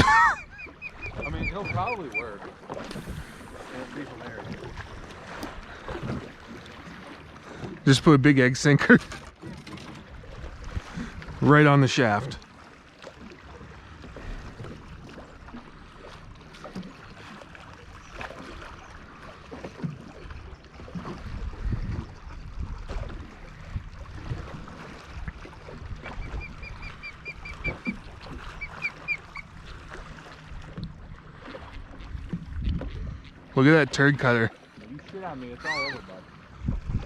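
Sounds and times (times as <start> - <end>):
water noise: 0.0 - 37.0
bird chirping rapidly: 0.4 - 2.2
low knocks from boat: 12.9 - 33.4.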